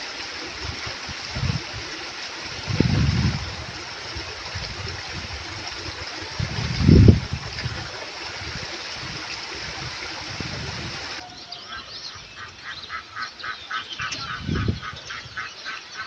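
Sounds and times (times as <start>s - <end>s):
stream water running: 0.0s - 16.0s
small birds chirping: 11.2s - 16.0s
duck quacking: 11.7s - 16.0s.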